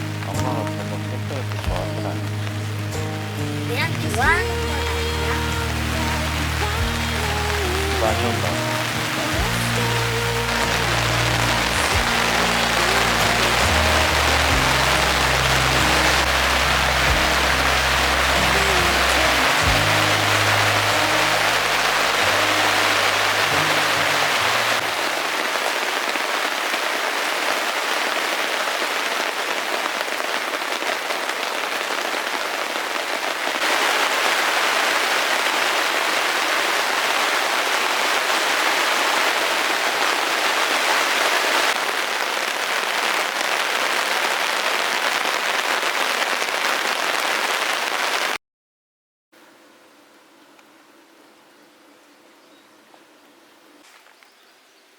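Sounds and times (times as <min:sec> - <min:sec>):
background music: 0:00.0 - 0:25.0
faint outdoor ambience: 0:00.0 - 0:46.4, 0:49.4 - 0:54.9
heavy rain: 0:00.0 - 0:48.4.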